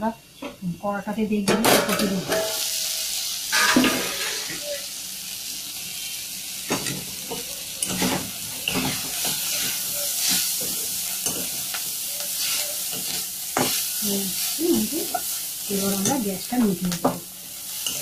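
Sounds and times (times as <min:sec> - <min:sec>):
filling sizzling in oil: 0:02.1 - 0:18.0
spatula scraping and tapping pan: 0:06.7 - 0:13.9.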